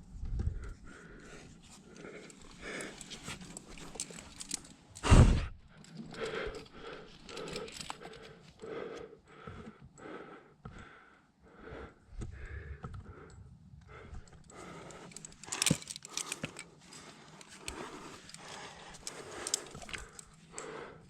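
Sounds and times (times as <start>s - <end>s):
person breathing hard: 0.4s - 21.0s
sharp clicks and scrapes: 1.9s - 5.0s, 14.0s - 20.7s.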